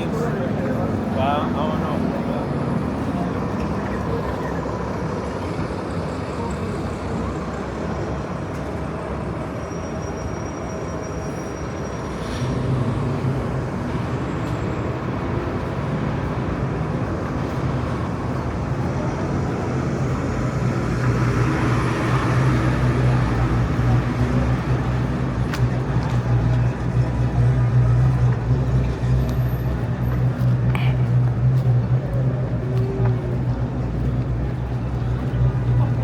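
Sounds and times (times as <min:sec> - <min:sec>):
city street traffic: 0:00.0 - 0:36.0
vehicle engine humming: 0:12.2 - 0:36.0.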